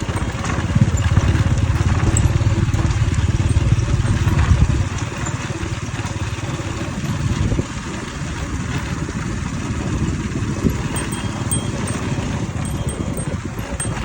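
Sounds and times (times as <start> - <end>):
small engine rumbling: 0.0 - 14.0.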